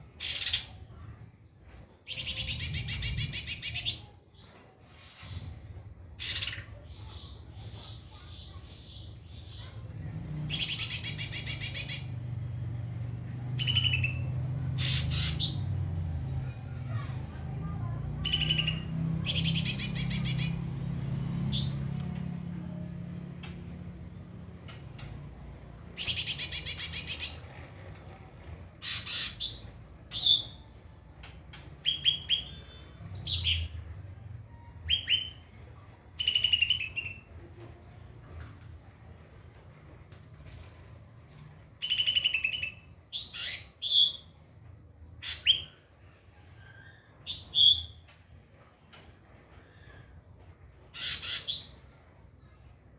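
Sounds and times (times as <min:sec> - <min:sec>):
bird singing trills: 0:13.5 - 0:15.7, 0:17.8 - 0:20.7, 0:26.0 - 0:27.4, 0:36.2 - 0:37.3, 0:51.0 - 0:51.9.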